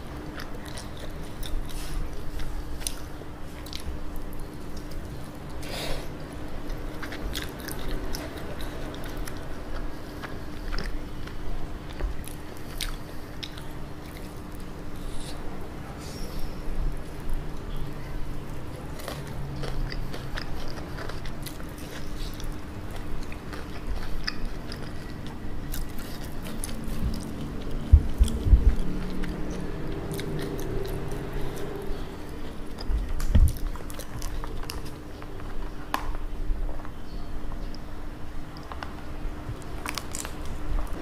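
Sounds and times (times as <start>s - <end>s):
crunchy chewing of fried chicken: 0.0s - 36.2s, 37.6s - 41.0s
dull low thumps: 27.0s - 29.2s.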